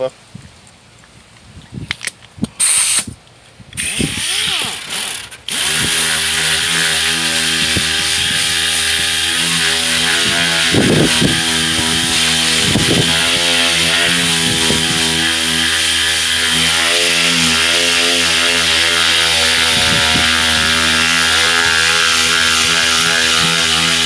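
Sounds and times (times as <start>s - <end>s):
sander sanding steel: 3.8s - 24.0s.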